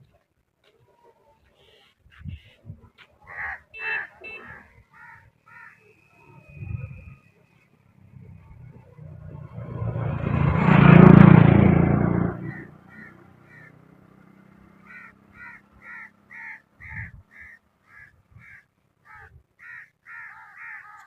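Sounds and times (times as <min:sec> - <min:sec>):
crows cawing: 0:03.2 - 0:05.9, 0:12.4 - 0:13.8, 0:14.8 - 0:21.0
vehicle passing by: 0:07.8 - 0:16.8.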